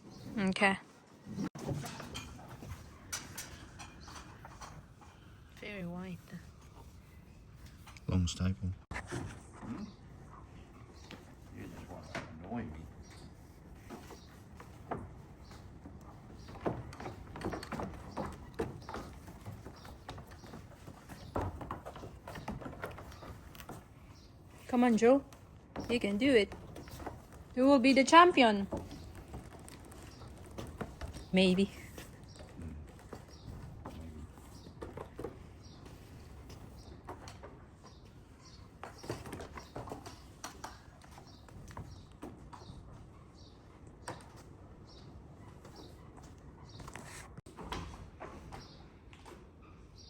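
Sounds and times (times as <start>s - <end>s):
sheep hooves clattering: 12.9s - 46.3s.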